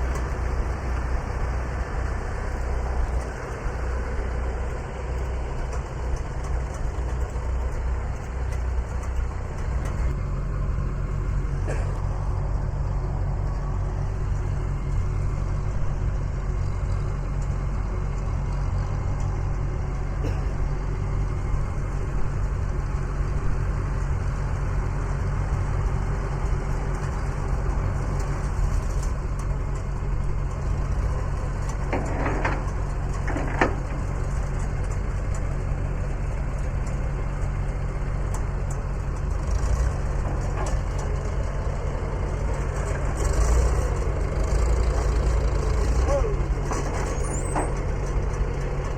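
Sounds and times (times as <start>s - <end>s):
engine idling: 0.0s - 48.9s.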